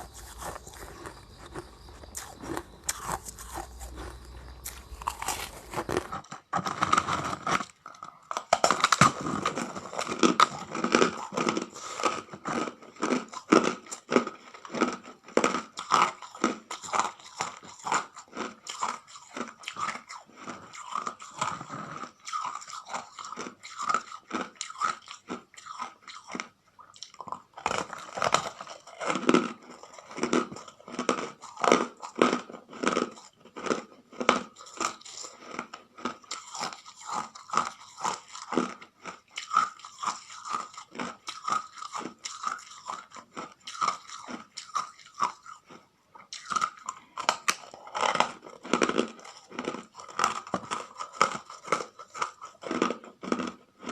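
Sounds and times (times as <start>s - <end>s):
ice being chewed: 0.0s - 53.9s.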